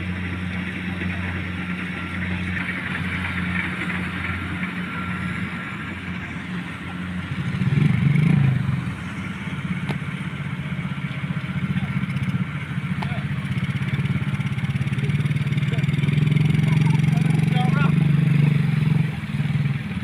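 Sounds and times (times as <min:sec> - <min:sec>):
engine humming: 0:00.0 - 0:20.0.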